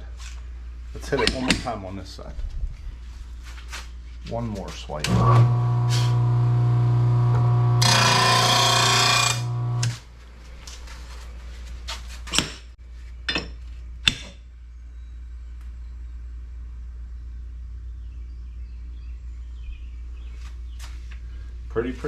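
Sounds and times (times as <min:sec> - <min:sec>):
blade grinding on grinding wheel: 0:05.1 - 0:10.0
blade sharpener humming: 0:05.1 - 0:10.0.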